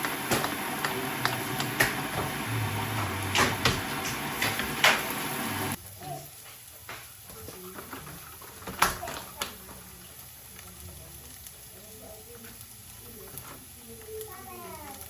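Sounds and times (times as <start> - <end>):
objects knocking and clicking: 0.0 - 5.8
room noise: 0.0 - 12.6.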